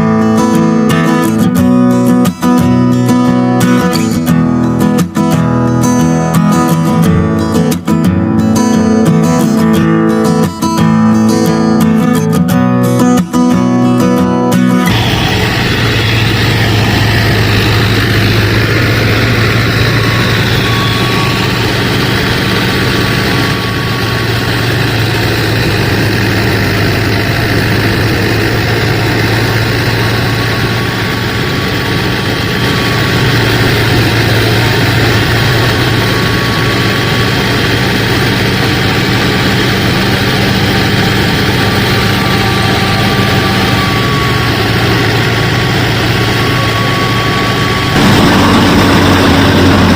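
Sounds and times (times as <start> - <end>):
small motor humming: 14.9 - 49.9.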